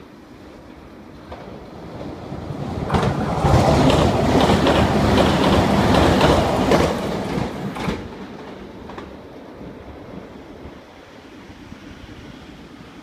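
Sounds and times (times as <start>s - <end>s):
train wheels rumbling on rails: 0.5s - 13.0s
clacks over rail joints: 2.8s - 9.2s.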